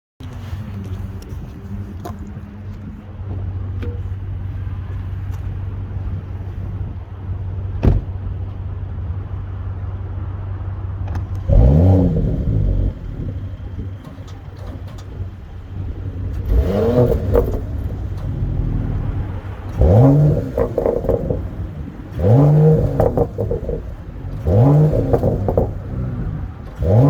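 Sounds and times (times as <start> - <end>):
car engine idling: 0.2 - 27.0
engine throttle blip: 11.1 - 27.0.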